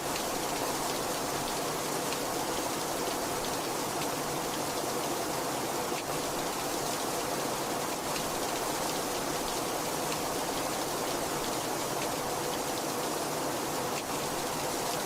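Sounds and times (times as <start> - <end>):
raindrops ticking on a surface: 5.9 - 7.3, 7.9 - 12.9, 13.9 - 15.0.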